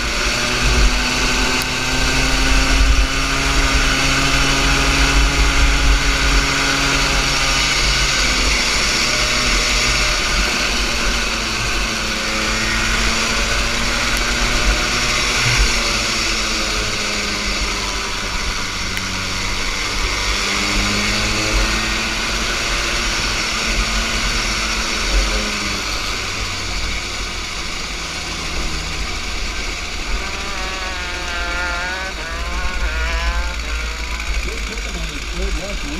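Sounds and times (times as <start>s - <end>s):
kart engine revving: 0.0s - 35.9s
wind rush over microphone: 14.8s - 16.0s.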